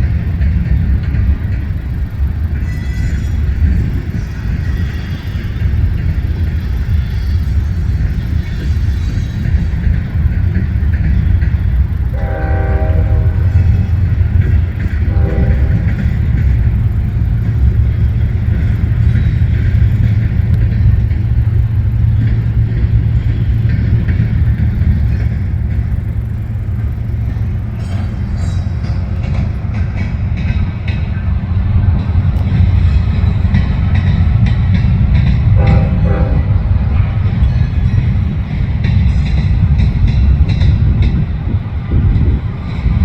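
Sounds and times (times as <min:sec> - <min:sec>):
train rumbling past: 0:00.0 - 0:43.0
locomotive horn blasts: 0:12.1 - 0:16.5, 0:35.5 - 0:37.1.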